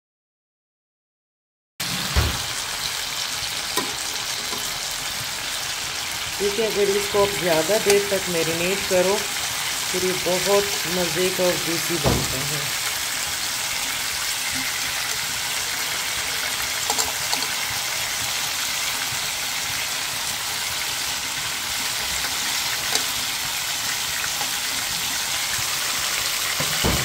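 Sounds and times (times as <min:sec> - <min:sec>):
food sizzling in oil: 0:01.8 - 0:27.0
metal tongs clicking on pan: 0:03.8 - 0:04.7, 0:16.8 - 0:17.6, 0:22.2 - 0:23.3.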